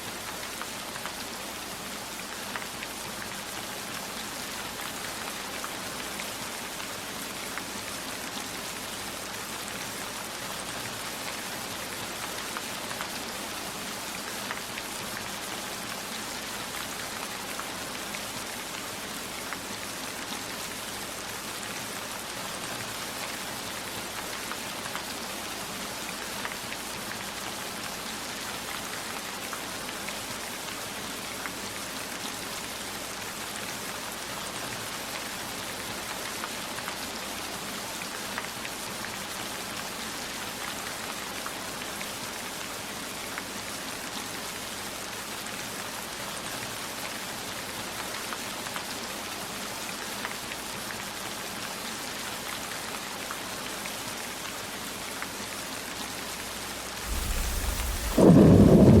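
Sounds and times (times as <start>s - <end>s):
heavy rain falling: 57.0s - 59.0s.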